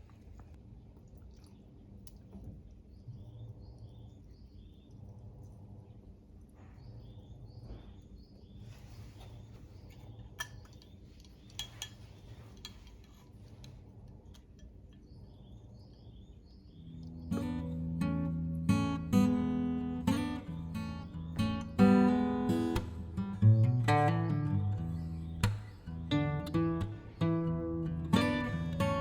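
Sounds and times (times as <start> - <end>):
cutlery clinking against dishes: 10.3 - 13.4
high chirping: 15.9 - 29.0.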